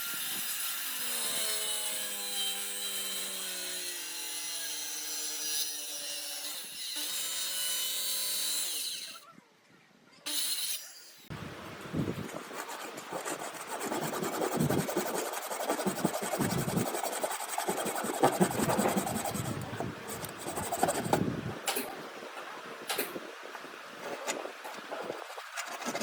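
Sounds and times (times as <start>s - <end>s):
tool scraping wood: 12.1s - 21.9s, 24.0s - 26.0s.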